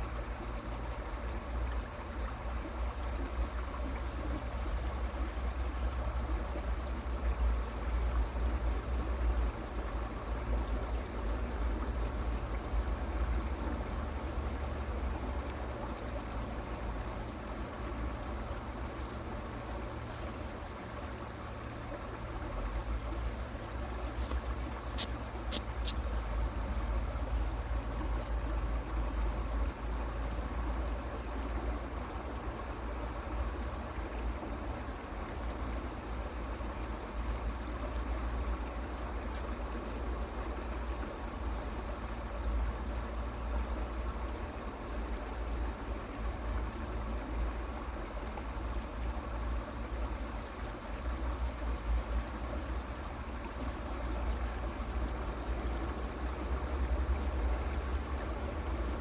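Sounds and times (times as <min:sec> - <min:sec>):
creek water flowing over stones: 0:00.0 - 0:59.0.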